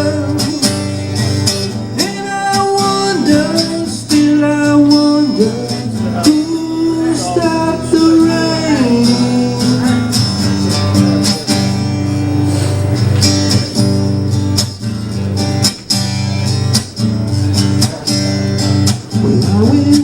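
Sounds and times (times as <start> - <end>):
strummed acoustic guitar: 0.0 - 20.0
sustained bass line: 19.1 - 20.0.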